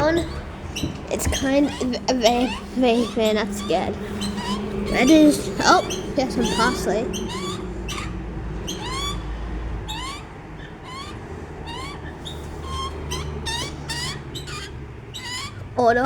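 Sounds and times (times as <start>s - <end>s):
baby birds chirping: 0.0s - 16.0s
low steady rumble: 0.0s - 16.0s.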